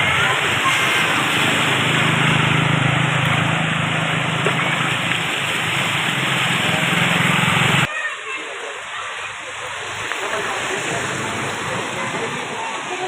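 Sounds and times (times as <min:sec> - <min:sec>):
vehicle engine humming: 0:00.0 - 0:07.9
loud rushing water: 0:00.0 - 0:13.0.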